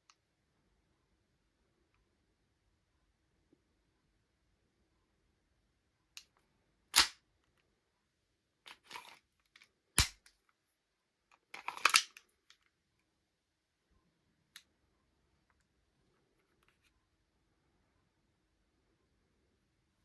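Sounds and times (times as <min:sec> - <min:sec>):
airsoft pistol clacks: 0:07.0 - 0:07.2, 0:10.0 - 0:10.3.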